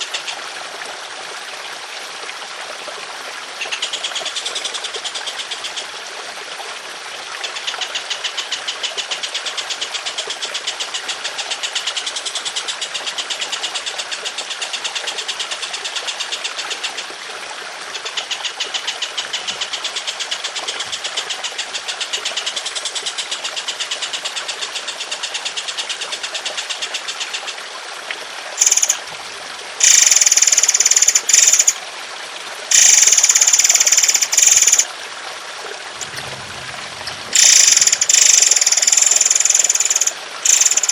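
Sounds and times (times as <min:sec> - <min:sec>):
water trickling: 0:00.0 - 0:40.9
songbird rattling trills: 0:28.6 - 0:29.0, 0:29.8 - 0:31.8, 0:32.7 - 0:34.8, 0:36.0 - 0:40.9.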